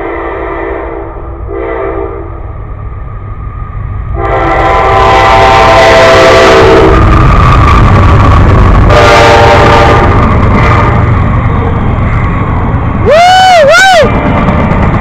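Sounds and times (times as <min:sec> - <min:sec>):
locomotive horn blowing: 0:00.0 - 0:02.4, 0:04.1 - 0:07.0, 0:08.9 - 0:10.2
low rumble of passing train: 0:00.0 - 0:15.0.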